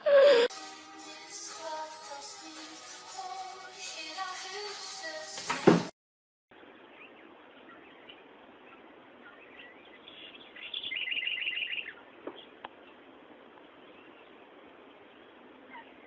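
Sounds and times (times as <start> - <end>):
bird chirping: 6.8 - 13.1.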